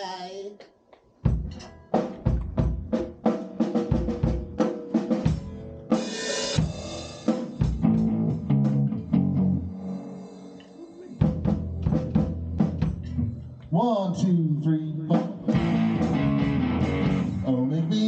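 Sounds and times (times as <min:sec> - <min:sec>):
drum kit groove: 0:01.2 - 0:13.8, 0:15.0 - 0:18.0
cymbal crash: 0:06.0 - 0:07.8, 0:09.6 - 0:12.0
low held notes: 0:07.7 - 0:17.9.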